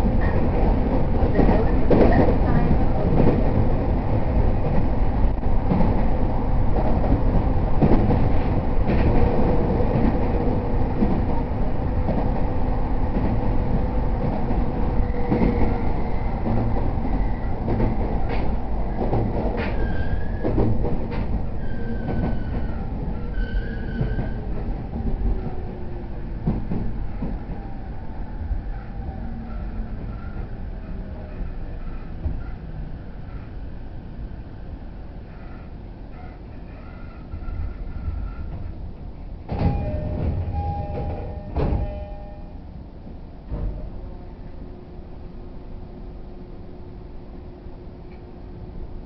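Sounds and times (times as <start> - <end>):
rail joint clicks: 0.0 - 27.8, 35.3 - 42.6, 43.4 - 44.2, 48.0 - 48.4
train wheels rumbling on rail: 0.0 - 49.0.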